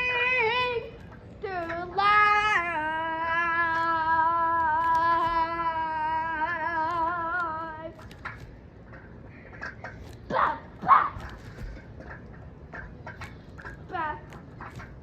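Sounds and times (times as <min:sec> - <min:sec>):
child singing a long note: 0:00.0 - 0:07.9
faint clicks: 0:03.5 - 0:10.3.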